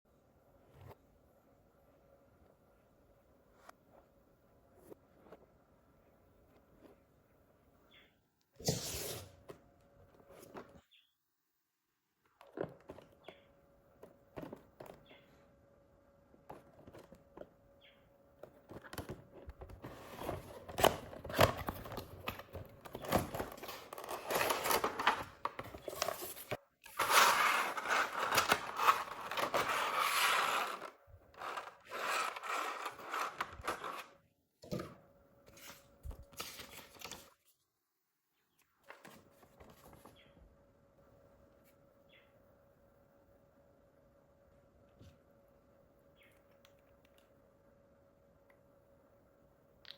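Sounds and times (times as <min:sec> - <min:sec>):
packaging clicks and rustles: 0:18.4 - 0:34.1.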